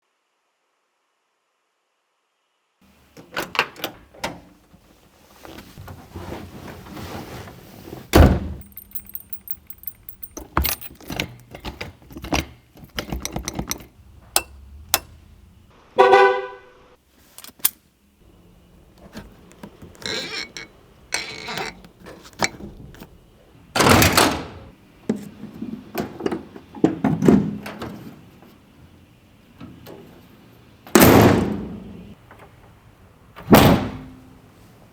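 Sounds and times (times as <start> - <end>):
car parts thunking shut: 8.1 - 15.6, 23.8 - 28.3, 30.9 - 34.3
small clicks and rattles: 8.6 - 15.1
car horn blast: 16.0 - 16.9.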